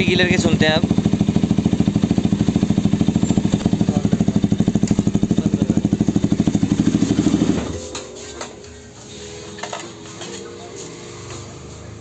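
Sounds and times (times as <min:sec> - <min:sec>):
motorcycle engine idling: 0:00.0 - 0:07.9.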